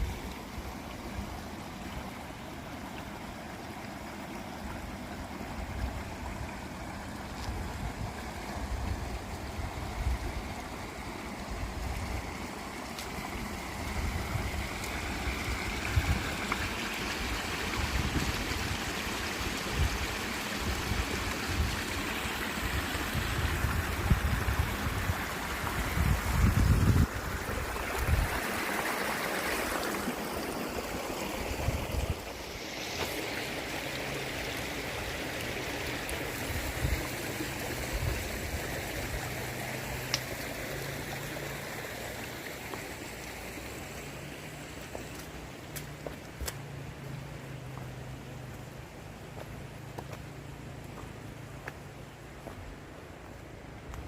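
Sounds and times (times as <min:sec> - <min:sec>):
wind buffeting microphone: 0:23.1 - 0:28.5.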